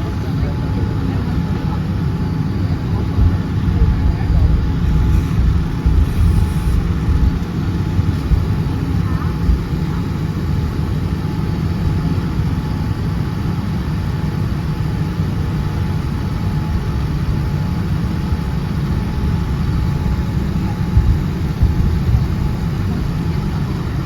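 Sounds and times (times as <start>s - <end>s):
faint whine: 0.0s - 11.4s
jet engines rumbling: 0.0s - 24.0s.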